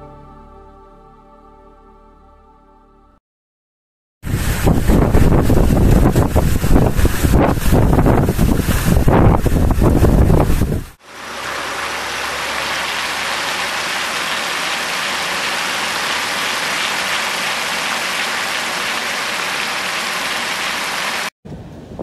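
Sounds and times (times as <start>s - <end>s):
low wind rumble: 4.2s - 11.6s, 21.5s - 22.0s
heavy rain: 4.3s - 21.3s.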